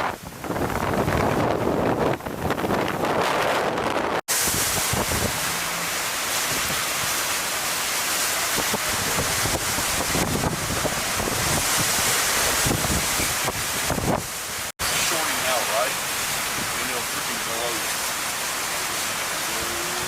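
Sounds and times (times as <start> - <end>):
wind buffeting microphone: 0.0 - 14.7.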